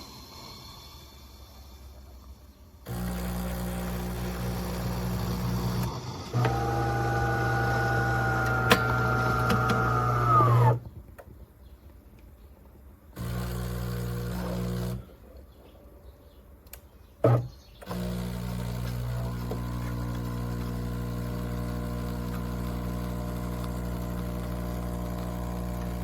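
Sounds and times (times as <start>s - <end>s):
espresso machine motor buzzing: 2.9s - 10.8s, 13.2s - 15.1s, 17.8s - 26.0s
motor whining: 2.9s - 10.8s, 13.2s - 15.0s, 17.3s - 26.0s.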